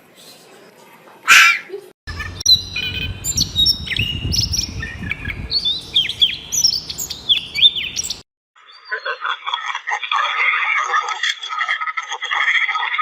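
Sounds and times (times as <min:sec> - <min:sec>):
low background rumble: 0:02.1 - 0:08.2
small birds chirping: 0:02.1 - 0:09.1.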